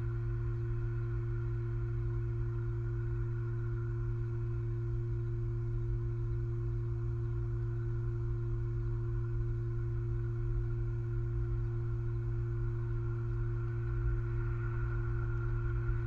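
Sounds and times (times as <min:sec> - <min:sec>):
electrical hum: 0:00.0 - 0:16.0
flickering low rumble: 0:00.0 - 0:16.0.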